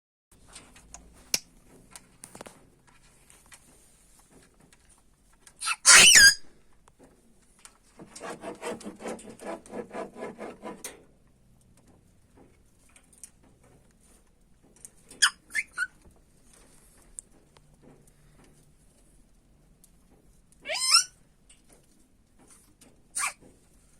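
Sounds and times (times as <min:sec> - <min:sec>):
parrot short repeated calls: 0:05.6 - 0:06.4
parrot squeaking: 0:05.6 - 0:06.4, 0:15.2 - 0:15.9, 0:20.7 - 0:21.1, 0:23.2 - 0:23.4
parrot whistling: 0:05.6 - 0:06.4.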